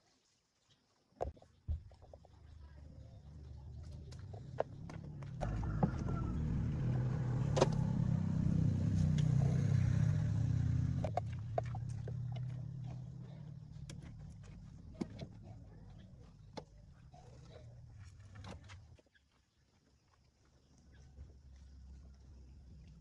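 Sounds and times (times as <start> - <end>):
car engine humming: 3.3 - 18.8.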